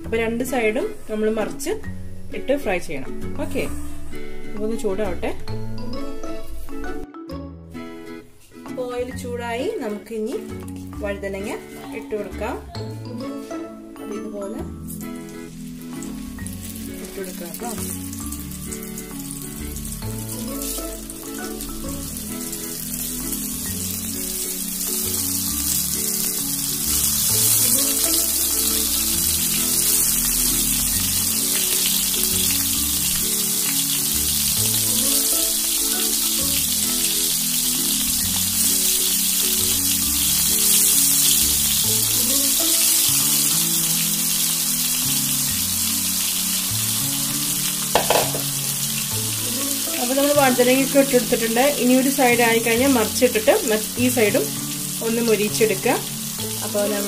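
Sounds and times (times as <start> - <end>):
background music: 0.0 - 57.0
frying in hot oil sizzle: 9.0 - 57.0.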